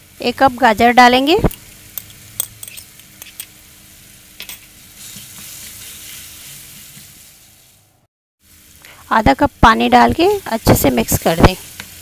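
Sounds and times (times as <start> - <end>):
food frying sizzle: 0.0 - 12.0
spatula scraping and tapping wok: 1.9 - 3.6, 4.4 - 7.5.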